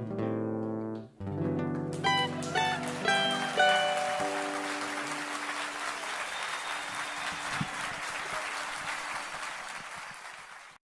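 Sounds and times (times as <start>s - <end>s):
plucked-string music: 0.0s - 5.5s
audience applauding: 1.9s - 10.8s.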